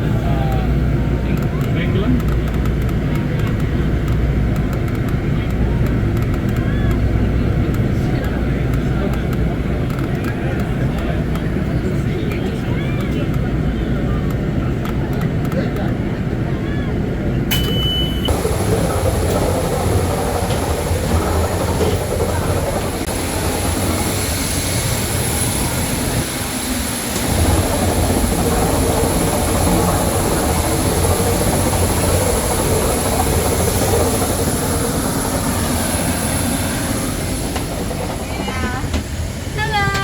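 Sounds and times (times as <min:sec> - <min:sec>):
airport ground equipment rumble: 0:00.0 - 0:40.0
jet airliner whine: 0:15.4 - 0:40.0.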